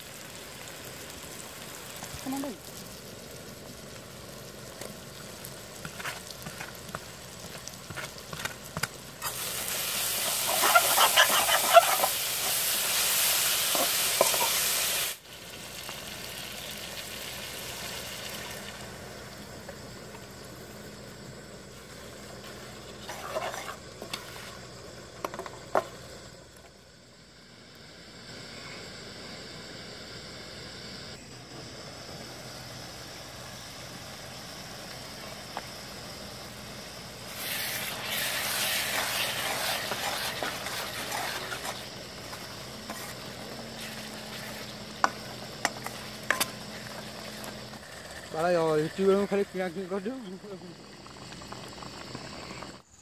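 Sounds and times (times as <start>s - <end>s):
curry sizzling and crackling: 0.0s - 26.8s, 32.4s - 50.0s
loud frying sizzle: 0.0s - 28.3s, 31.1s - 52.8s
steady hiss: 0.0s - 53.0s
spoon scraping pan: 10.2s - 12.6s, 13.7s - 14.7s, 22.4s - 24.6s, 38.6s - 47.6s.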